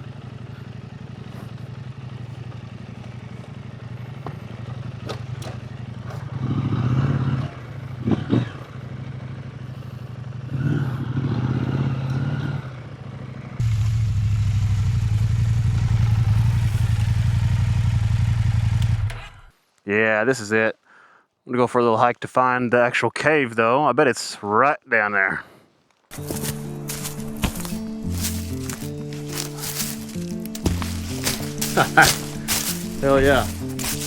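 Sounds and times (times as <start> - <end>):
motorcycle engine running: 0.0 - 19.5, 26.1 - 34.0
stones clattering: 26.1 - 34.0.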